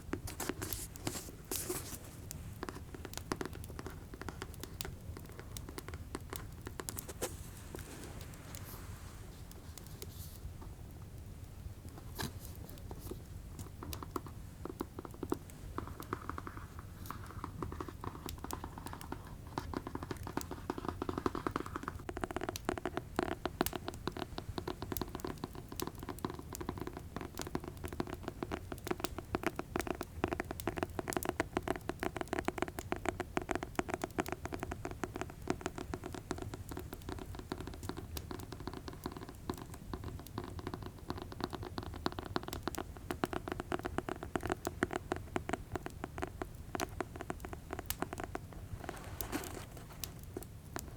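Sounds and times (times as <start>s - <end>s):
fingers tapping fast: 13.6s - 50.9s.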